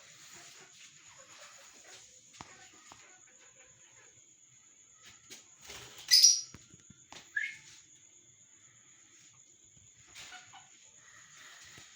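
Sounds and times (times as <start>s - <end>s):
lovebirds chirping: 6.1s - 6.6s.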